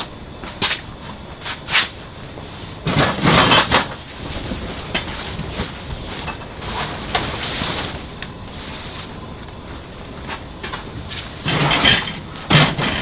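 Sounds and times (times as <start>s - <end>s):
scraping clatter: 10.3s - 13.0s.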